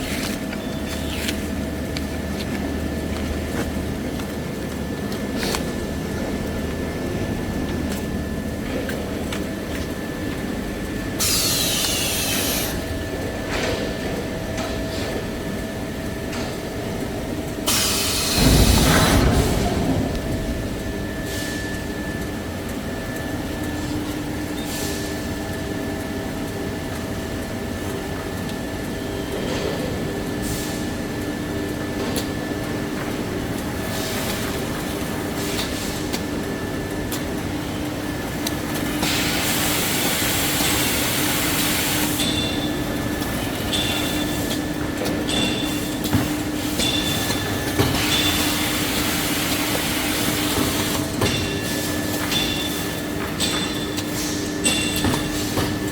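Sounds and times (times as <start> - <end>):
machinery humming: 0.0 - 55.9
loud rushing burst: 18.2 - 21.6.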